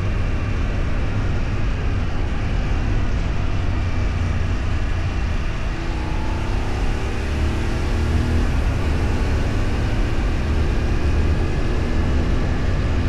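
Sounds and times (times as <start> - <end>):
vehicle road noise: 0.0 - 13.0.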